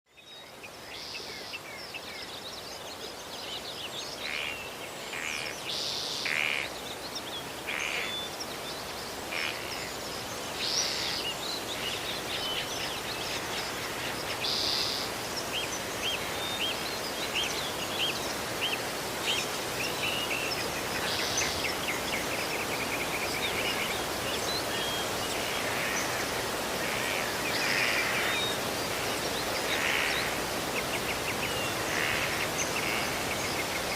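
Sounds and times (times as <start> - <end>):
birds chirping: 0.2 - 33.9
outdoor hiss: 0.4 - 33.9.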